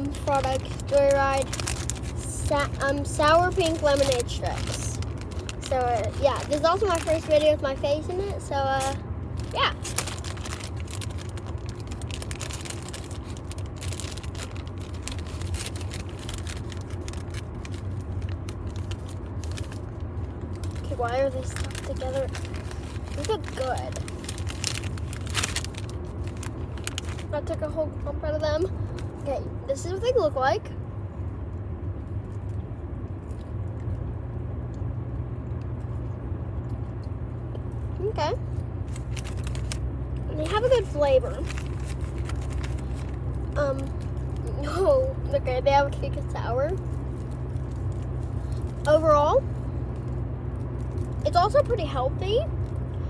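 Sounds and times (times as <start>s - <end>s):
plastic pouch crinkling: 0.0s - 27.4s, 38.8s - 44.5s, 46.8s - 48.9s
low background rumble: 0.0s - 53.0s
steady low hum: 0.0s - 53.0s.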